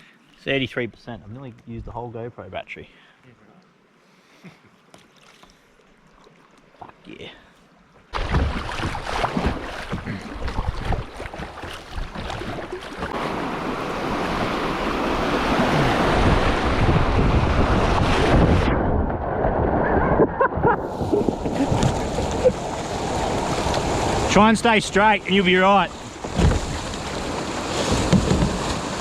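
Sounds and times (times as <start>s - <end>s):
knocks and splashes: 8.0s - 14.6s, 15.3s - 24.4s, 25.9s - 29.0s
water rushing over rapids: 9.1s - 19.7s, 20.8s - 29.0s
wind buffeting microphone: 14.3s - 24.3s.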